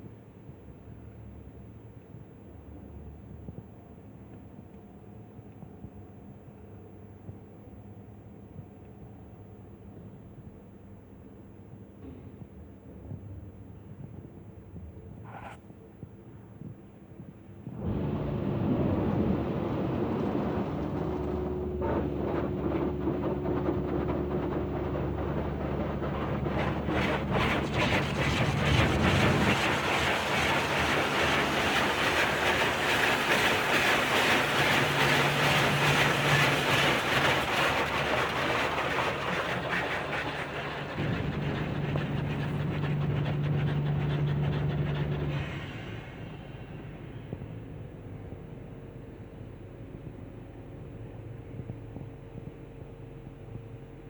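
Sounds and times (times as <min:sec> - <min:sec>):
motor and pump hum: 0:17.7 - 0:54.0.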